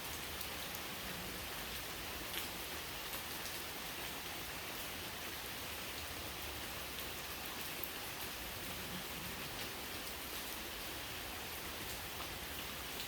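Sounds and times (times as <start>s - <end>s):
raindrops ticking: 0.0s - 4.2s, 5.8s - 8.8s
steady rain hiss: 0.0s - 13.0s.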